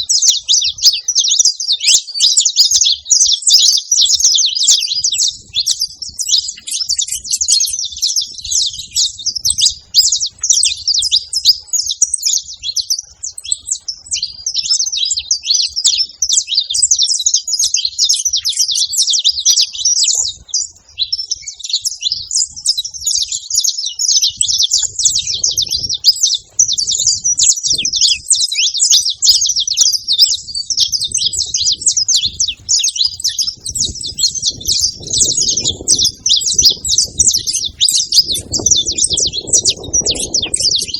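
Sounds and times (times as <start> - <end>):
finches chirping and twittering: 0.0 - 40.9.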